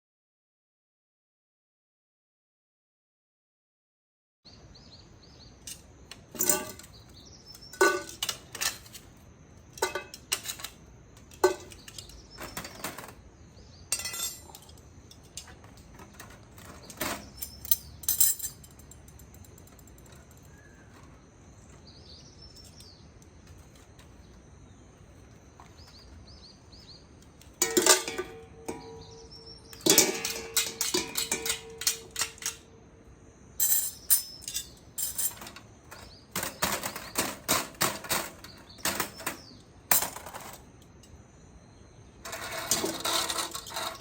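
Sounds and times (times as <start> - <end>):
birds chirping faintly: 4.5 - 44.0
sharp clinks and knocks: 5.6 - 13.2, 13.9 - 24.1, 26.8 - 32.9, 33.6 - 41.2.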